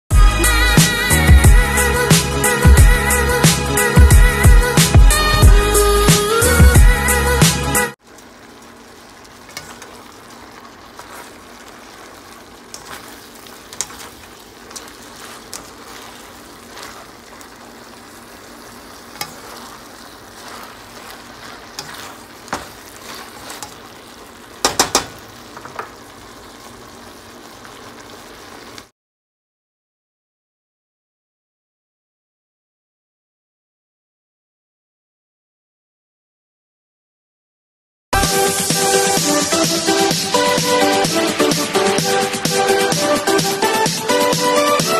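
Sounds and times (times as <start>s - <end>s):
vegetables sizzling in oil: 8.0s - 28.9s
utensil clicking against pan: 9.5s - 10.1s, 12.7s - 15.8s, 19.1s - 19.7s, 24.6s - 26.0s.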